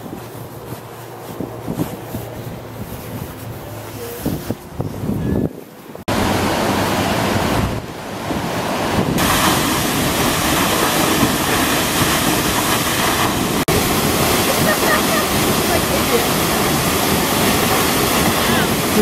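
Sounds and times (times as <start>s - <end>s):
wind on microphone: 0.0s - 19.0s
fast-flowing water rushing: 6.1s - 19.0s.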